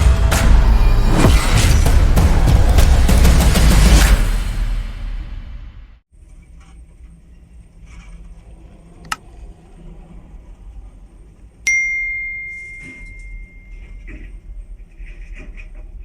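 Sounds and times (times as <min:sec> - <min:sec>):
ringing metallic strike: 0:11.7 - 0:14.1.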